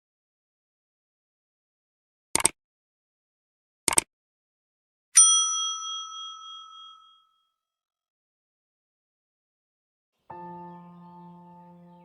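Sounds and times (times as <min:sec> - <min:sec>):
short clicks: 0:02.4 - 0:02.6, 0:03.9 - 0:04.1
bright bell ding: 0:05.2 - 0:07.3.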